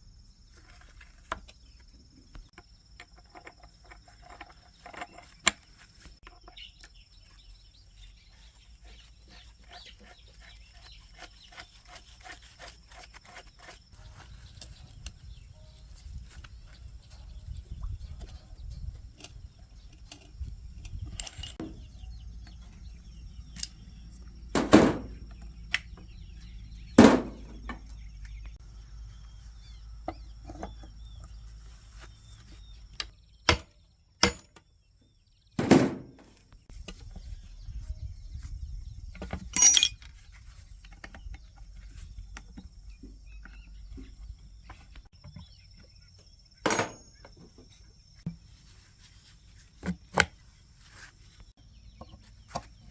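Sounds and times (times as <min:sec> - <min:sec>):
hand tools clanking on metal: 0:39.6 - 0:40.1, 0:46.6 - 0:47.2.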